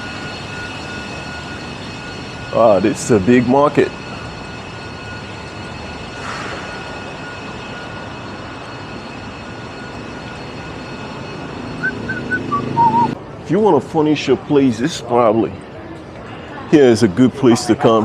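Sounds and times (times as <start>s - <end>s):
faint high tones: 0.0s - 13.2s
busy market background hiss: 11.9s - 18.0s.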